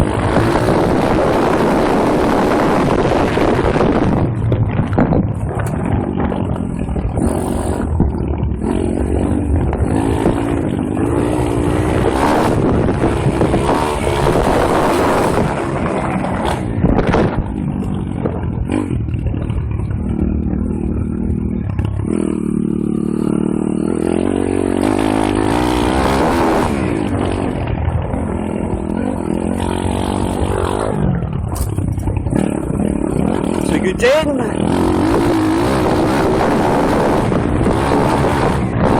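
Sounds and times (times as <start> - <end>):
motorbike engine revving: 0.0 - 38.9
knocks and clatter from bike: 4.3 - 8.8, 30.1 - 33.8.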